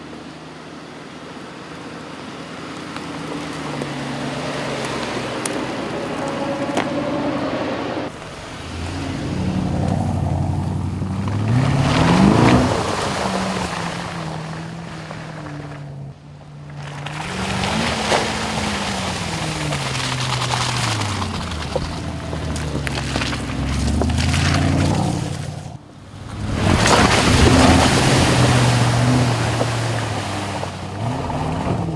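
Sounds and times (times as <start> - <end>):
car engine accelerating: 0.0 - 31.9
tyre and wind noise: 2.6 - 31.9.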